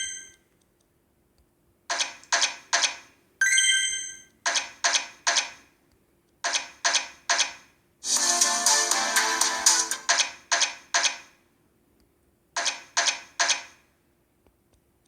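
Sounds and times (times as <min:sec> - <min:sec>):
music jingle: 0:08.0 - 0:10.1.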